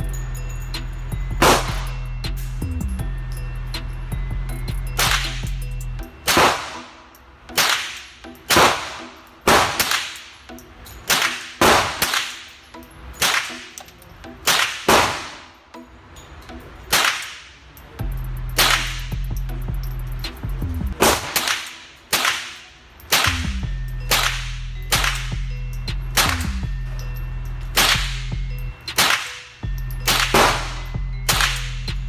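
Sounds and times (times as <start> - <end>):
background music with bass: 0.0 - 7.6, 17.8 - 21.0, 23.2 - 32.0
rifle shots echoing: 7.6 - 10.2, 21.0 - 23.3.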